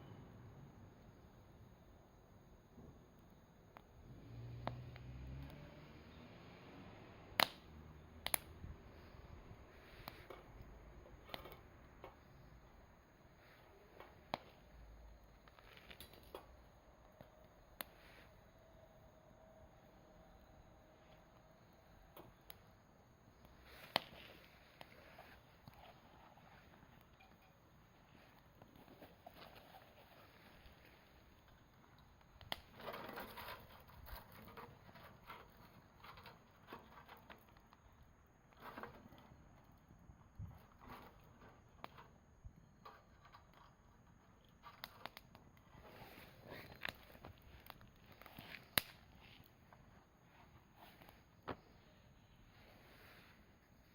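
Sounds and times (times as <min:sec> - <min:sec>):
campfire crackling: 0:00.7 - 0:05.8, 0:06.8 - 0:53.9
fire popping: 0:07.3 - 0:18.6, 0:21.0 - 0:52.0
sharp fire pop: 0:07.4 - 0:07.6.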